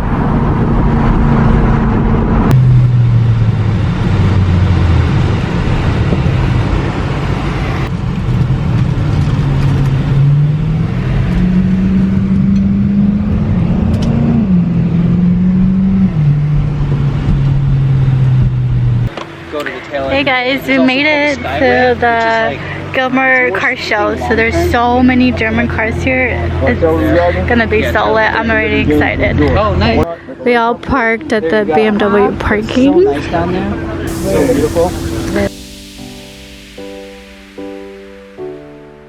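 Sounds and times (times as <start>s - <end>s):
car engine revving: 0.0s - 23.0s, 34.0s - 39.0s.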